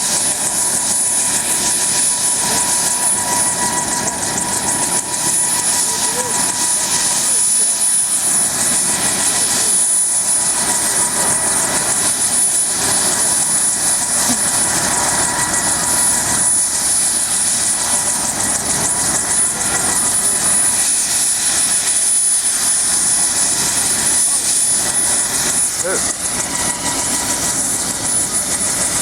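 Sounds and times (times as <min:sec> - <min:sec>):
helicopter rotor and turbine: 0:00.0 - 0:29.0.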